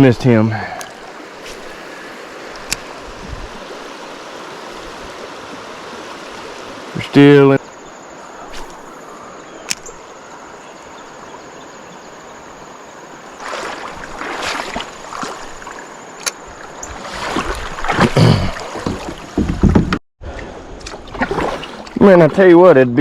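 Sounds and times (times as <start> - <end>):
water rushing: 0.0 - 20.0, 20.6 - 22.8
paddle strokes splashing: 0.7 - 7.4, 13.2 - 20.0, 20.8 - 22.0.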